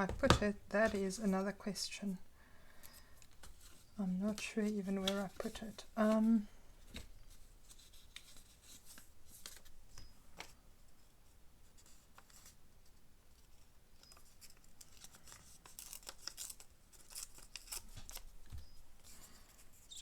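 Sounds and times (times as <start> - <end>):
paper scraps rustling and clicking: 14.2 - 18.4.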